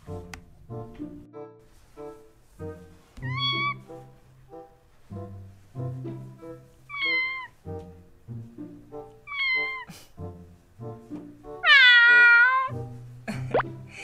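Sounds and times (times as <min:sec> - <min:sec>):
recorded cat meows: 0:03.2 - 0:03.8, 0:06.9 - 0:07.5, 0:09.3 - 0:09.9, 0:11.6 - 0:12.7.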